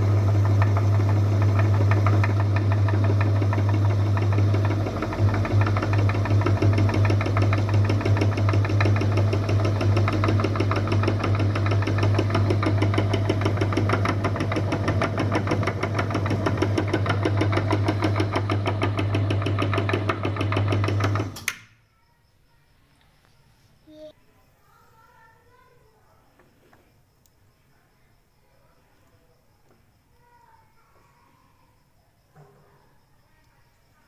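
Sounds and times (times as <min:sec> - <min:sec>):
meat grinder motor rattling: 0:00.0 - 0:21.5.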